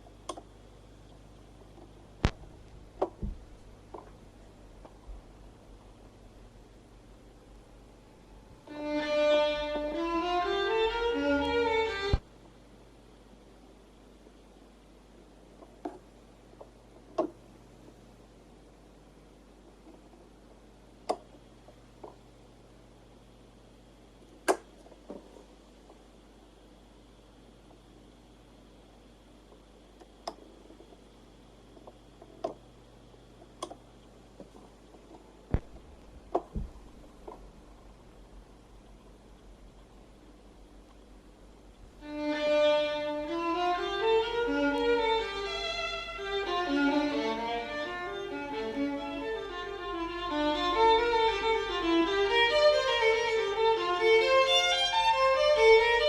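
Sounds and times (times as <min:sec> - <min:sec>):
faint steady hum: 0:00.0 - 0:56.0
thump: 0:03.2 - 0:03.4, 0:36.4 - 0:36.8
violin music from a record: 0:08.6 - 0:12.3, 0:41.9 - 0:56.0
turntable clicks and knocks: 0:15.6 - 0:17.4, 0:24.4 - 0:26.0, 0:31.8 - 0:32.6, 0:34.4 - 0:37.5
heavy thump: 0:36.4 - 0:36.8.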